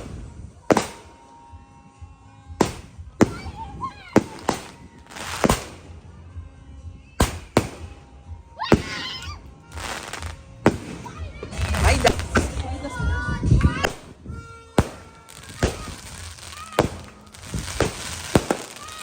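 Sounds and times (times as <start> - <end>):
firework crackling: 0.0 - 1.7, 2.6 - 6.2, 7.2 - 19.0
firework shot reports: 2.6 - 6.0, 10.0 - 18.8.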